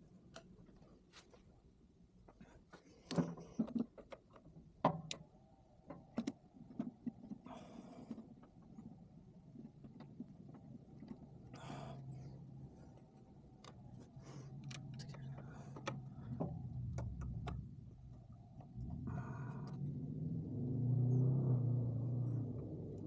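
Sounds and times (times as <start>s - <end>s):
low steady hum: 0.0s - 23.0s
tools clicking and knocking: 13.6s - 18.8s.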